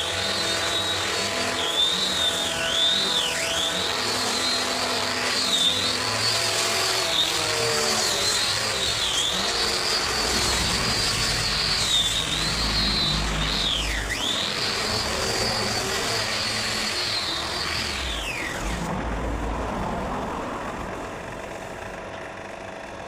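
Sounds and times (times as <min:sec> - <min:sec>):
electric power tool whining: 0:00.0 - 0:23.0
low rumble: 0:09.8 - 0:14.1, 0:18.2 - 0:22.2.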